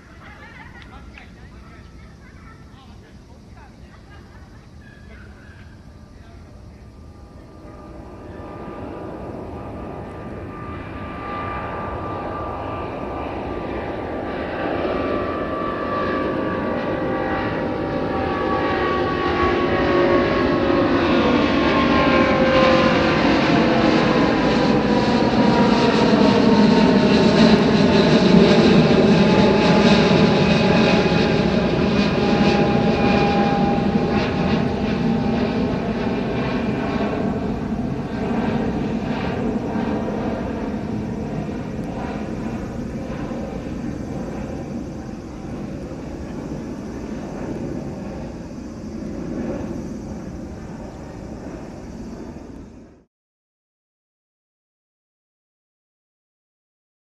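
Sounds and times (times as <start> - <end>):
jet engines rumbling: 0.0 - 53.1.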